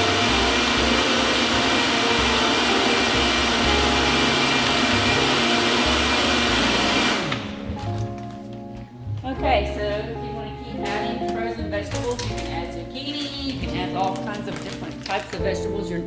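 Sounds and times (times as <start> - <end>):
blender running: 0.0 - 7.8.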